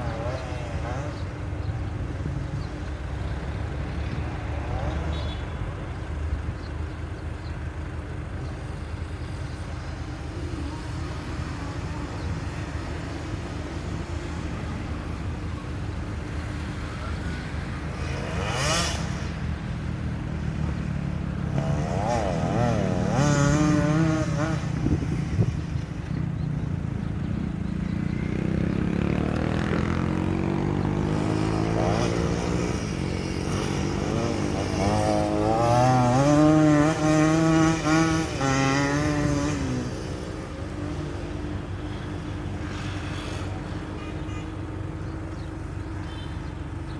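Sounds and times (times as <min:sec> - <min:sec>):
dirt bike engine revving: 0:00.0 - 0:01.4, 0:16.4 - 0:26.2, 0:27.4 - 0:41.1.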